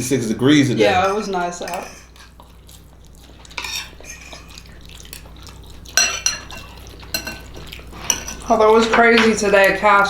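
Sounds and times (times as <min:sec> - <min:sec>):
cutlery clinking on plates: 0:03.5 - 0:04.6, 0:05.9 - 0:09.8.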